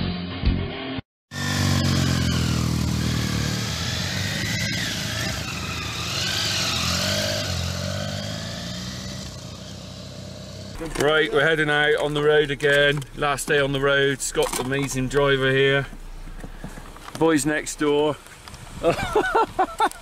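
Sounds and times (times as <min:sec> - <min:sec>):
vehicle engine running: 0:01.3 - 0:17.2.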